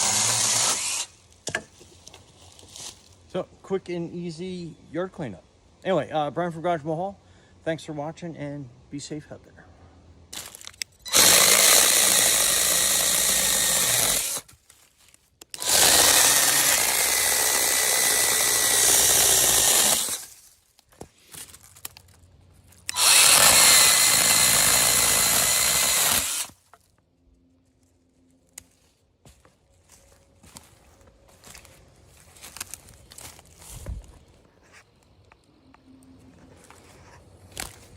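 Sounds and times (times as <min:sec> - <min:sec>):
electric chainsaw whining: 0:00.0 - 0:01.2, 0:10.4 - 0:14.4, 0:15.6 - 0:20.3, 0:22.9 - 0:26.6.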